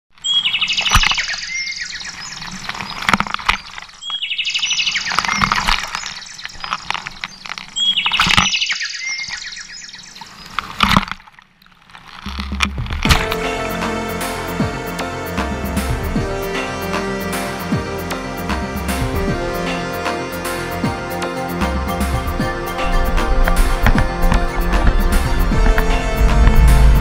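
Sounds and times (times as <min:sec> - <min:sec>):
songbird singing: 0:00.2 - 0:11.0.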